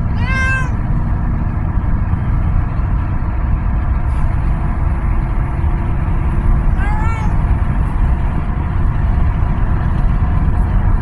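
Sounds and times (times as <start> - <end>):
cat meowing: 0.0 - 0.8, 6.7 - 7.4
car cabin road rumble: 0.0 - 11.0.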